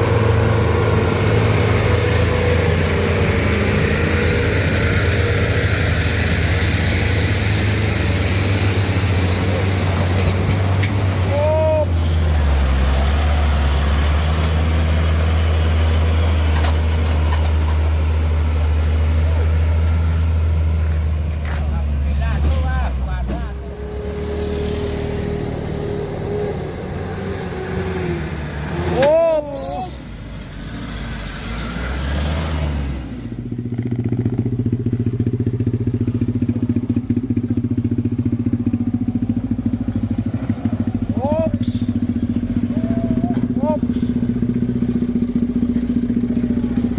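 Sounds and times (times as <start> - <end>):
heavy diesel engine running: 0.0 - 30.6, 33.0 - 46.9
road noise: 0.0 - 46.9.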